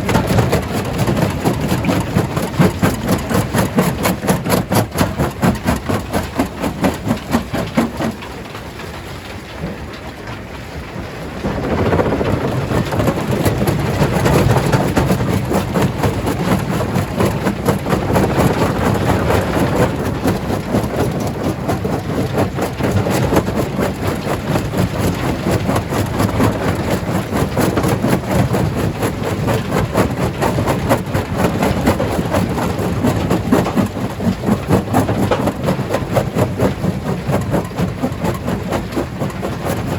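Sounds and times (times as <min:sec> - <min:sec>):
rumbling clatter of stone breaking: 0:11.2 - 0:21.3
heavy engine pulsing: 0:11.2 - 0:39.9.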